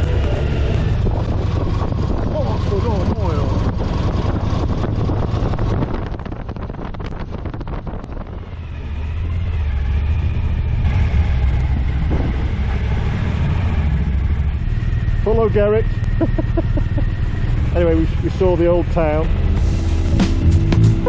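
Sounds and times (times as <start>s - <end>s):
wind buffeting microphone: 0.0s - 20.0s
motorcycle engine drone: 0.0s - 21.0s.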